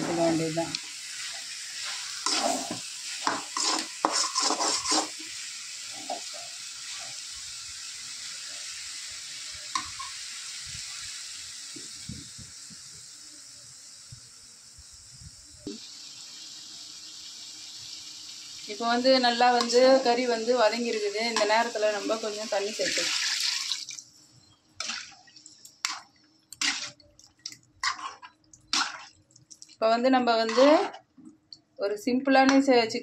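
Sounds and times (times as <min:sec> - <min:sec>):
chicken frying sizzle: 0:00.0 - 0:30.9
metal spoon scraping pan: 0:01.8 - 0:05.2, 0:25.8 - 0:27.0, 0:27.8 - 0:29.2, 0:30.4 - 0:31.0.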